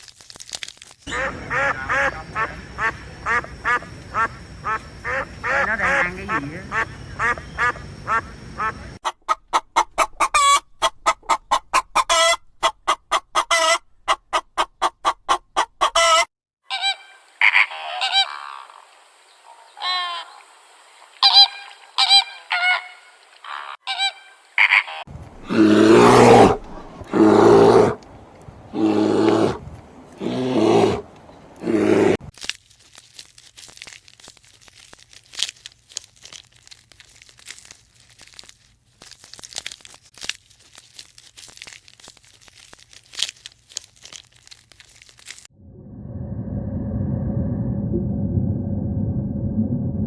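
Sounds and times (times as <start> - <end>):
loud drawn-out honks: 1.1 - 9.0
high thin poultry calls: 1.1 - 18.6
poultry calling: 1.1 - 18.8.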